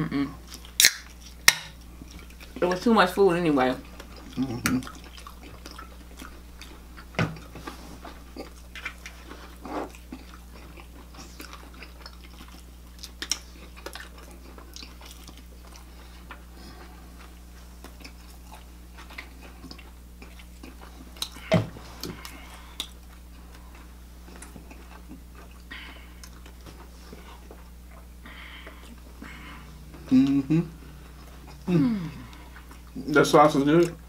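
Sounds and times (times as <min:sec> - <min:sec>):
low steady hum: 0:00.0 - 0:34.0
chewing and biting: 0:00.4 - 0:02.8, 0:03.8 - 0:34.0.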